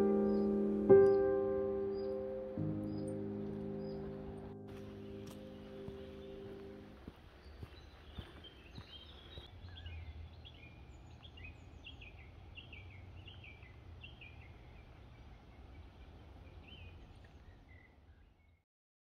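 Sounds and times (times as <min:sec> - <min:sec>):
birds chirping: 0:00.0 - 0:18.6.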